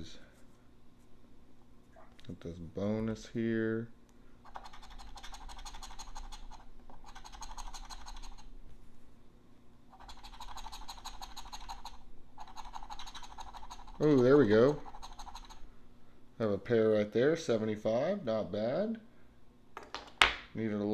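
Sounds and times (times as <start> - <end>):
scraping scratch-off ticket: 10.0 - 15.6.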